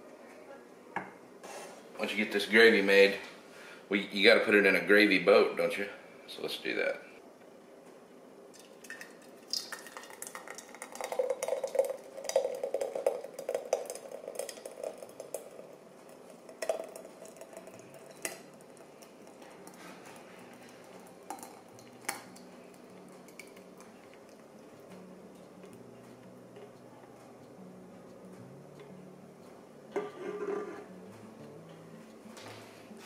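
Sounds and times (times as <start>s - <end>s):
gravy pouring: 8.5s - 27.6s
utensil scraping a pan: 30.0s - 30.9s.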